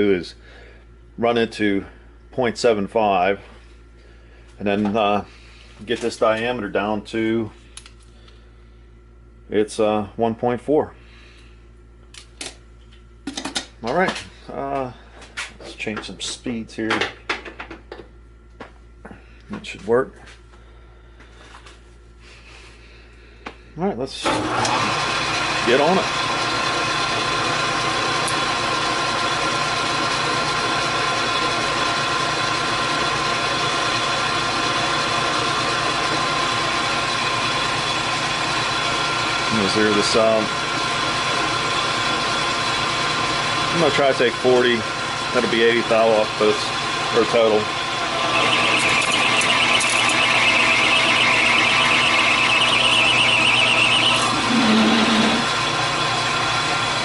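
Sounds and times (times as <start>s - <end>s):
metal lathe humming and whining: 24.5s - 57.0s
lathe cutting tool screech: 44.8s - 57.0s.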